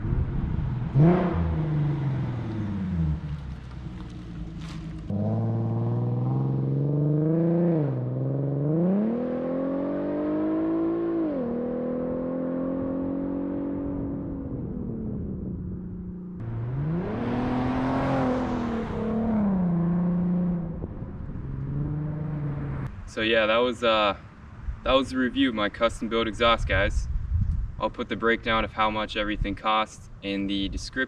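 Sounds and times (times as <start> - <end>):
car engine accelerating hard: 0.0 - 22.9.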